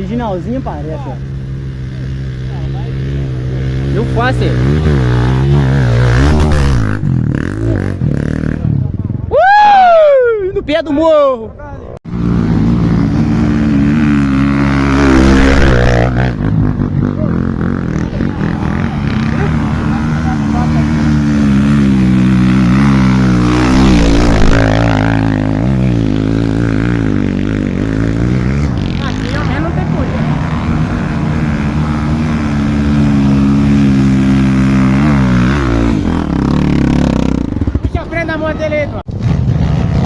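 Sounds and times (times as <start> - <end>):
off-road motorcycle engine: 0.0 - 9.4, 12.0 - 40.0.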